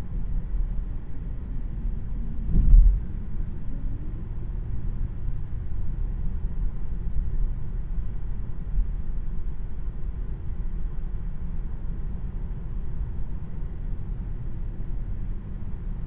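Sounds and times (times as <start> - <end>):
road and tyre rumble in car cabin: 0.0 - 16.0
loud thump: 2.4 - 3.4.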